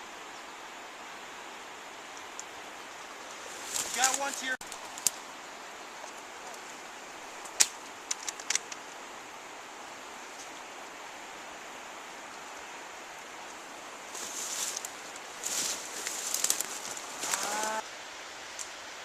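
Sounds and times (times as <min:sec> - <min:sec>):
steady hiss: 0:00.0 - 0:19.0
rustling: 0:03.2 - 0:05.3, 0:14.0 - 0:17.8.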